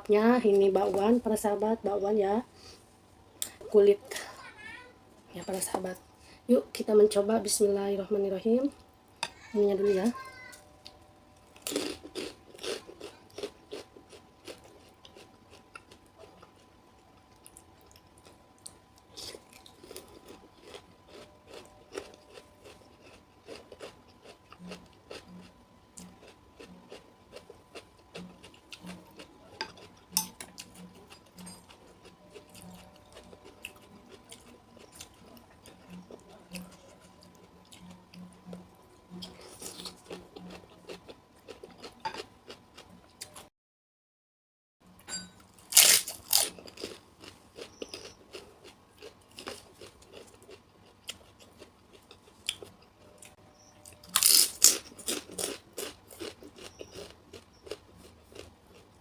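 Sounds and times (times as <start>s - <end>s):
person chewing crunchy vegetables: 10.8s - 43.5s, 45.5s - 59.0s.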